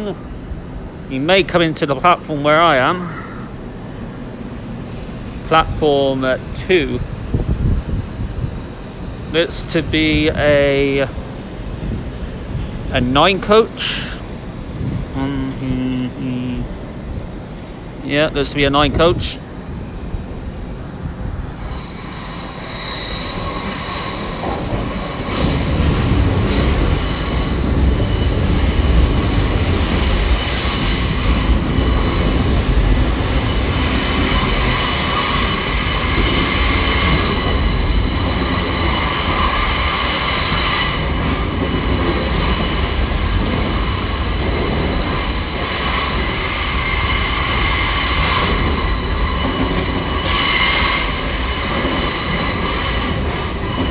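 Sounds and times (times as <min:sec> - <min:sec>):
train low rumble: 0:00.0 - 0:53.9
train wheels squealing: 0:21.6 - 0:53.9.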